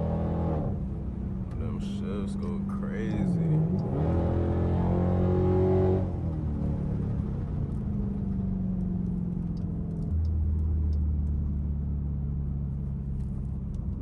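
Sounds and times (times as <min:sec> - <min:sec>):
engine revving: 0:02.4 - 0:06.2.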